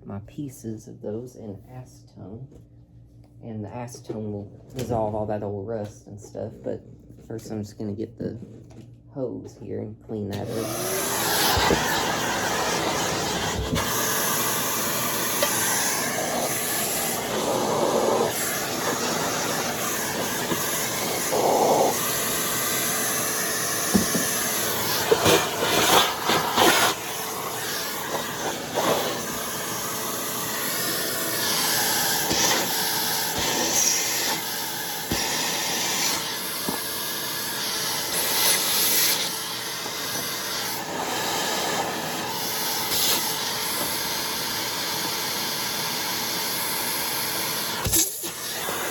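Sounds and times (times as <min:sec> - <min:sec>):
air hissing through a hose: 0:11.1 - 0:48.9.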